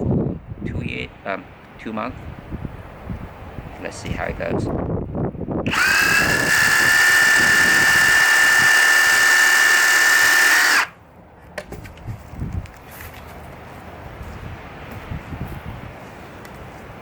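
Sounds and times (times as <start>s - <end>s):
reciprocating saw whining: 5.7s - 11.0s.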